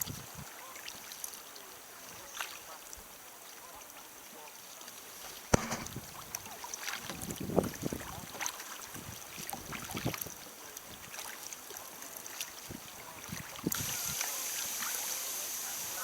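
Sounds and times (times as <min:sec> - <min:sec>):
kayak paddle splashing: 0:00.6 - 0:16.0
sharp knock: 0:05.6 - 0:05.9.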